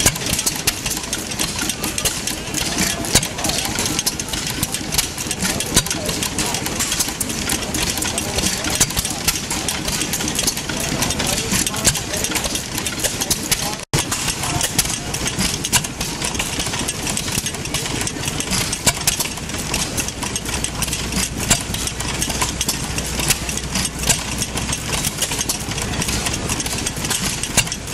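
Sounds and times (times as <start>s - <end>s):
gas engine running: 0.0s - 27.9s
sharp engine clicks: 0.0s - 27.9s.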